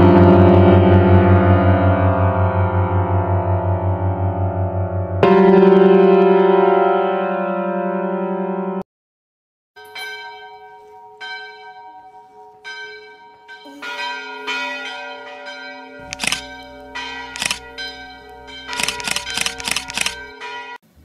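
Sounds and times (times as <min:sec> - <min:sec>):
sustained music chord: 0:00.0 - 0:08.8, 0:15.8 - 0:18.8
bell ringing: 0:09.8 - 0:20.8.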